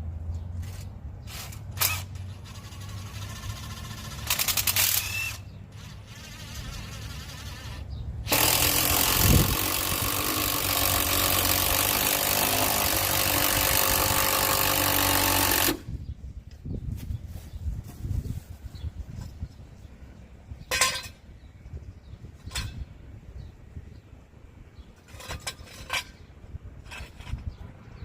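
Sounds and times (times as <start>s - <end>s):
power tool running: 1.8s - 15.9s.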